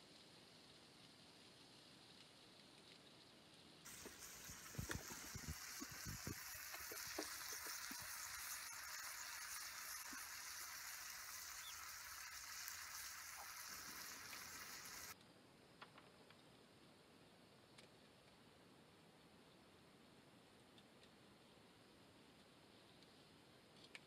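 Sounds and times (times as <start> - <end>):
food sizzling in a frying pan: 3.8 - 15.2.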